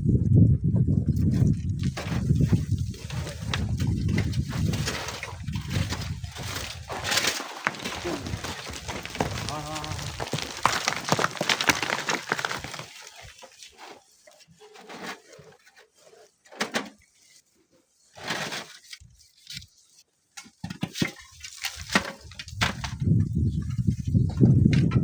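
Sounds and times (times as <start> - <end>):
sand and stones crumbling: 1.3 - 14.3.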